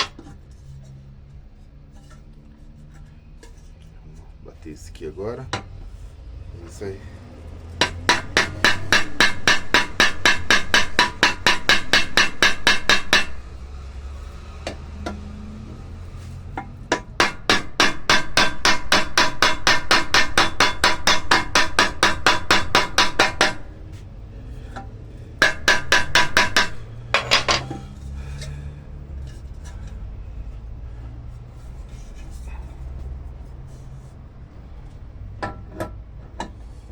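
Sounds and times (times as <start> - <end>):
hammer tapping on metal rivet: 7.8 - 13.5, 16.9 - 23.7, 25.4 - 27.8.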